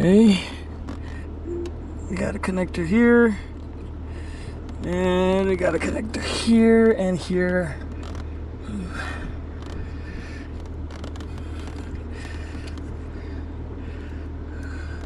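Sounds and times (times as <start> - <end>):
steady low hum: 0.0 - 15.0
wiring rustling and scraping: 0.8 - 1.3, 3.5 - 8.4, 9.2 - 13.2.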